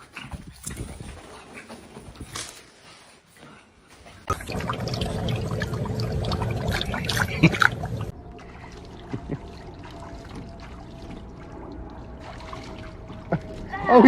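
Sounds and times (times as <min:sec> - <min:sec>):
water splashing and trickling: 0:04.3 - 0:14.0.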